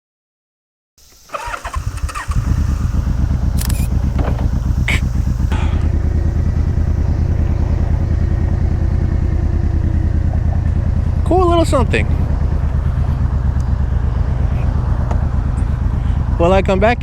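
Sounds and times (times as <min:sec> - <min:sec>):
motorcycle engine starting and idling: 0:01.0 - 0:17.0
sharp clicks: 0:01.1 - 0:05.9.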